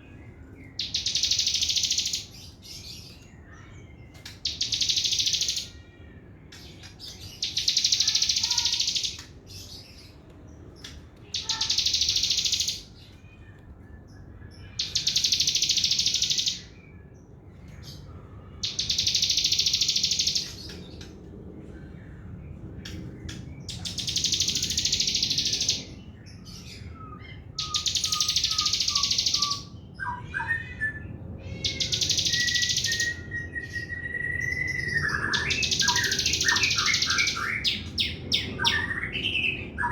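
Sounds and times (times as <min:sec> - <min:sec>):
songbird chattering trill: 0:00.7 - 0:02.5, 0:04.2 - 0:06.0, 0:07.3 - 0:09.3, 0:11.3 - 0:13.0, 0:14.6 - 0:16.8, 0:18.6 - 0:20.7, 0:23.6 - 0:25.9, 0:27.6 - 0:29.8, 0:31.5 - 0:33.3, 0:33.9 - 0:39.9.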